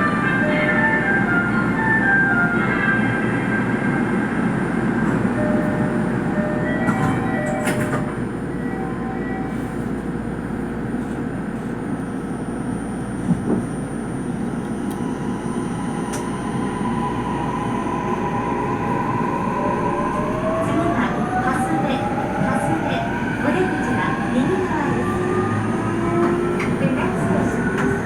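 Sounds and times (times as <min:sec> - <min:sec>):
train wheels and motors rumbling: 0:04.8 - 0:28.0.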